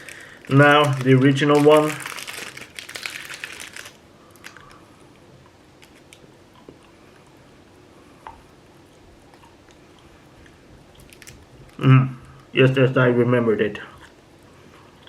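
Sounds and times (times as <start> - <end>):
wrapper crinkling: 0.0 - 4.8, 11.0 - 11.8
faint chewing: 4.3 - 7.4, 8.2 - 11.8.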